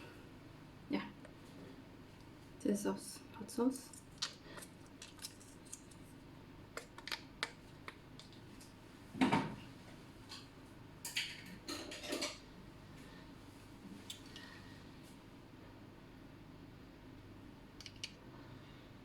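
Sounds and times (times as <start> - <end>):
dishes and utensils clinking: 11.0 - 12.4.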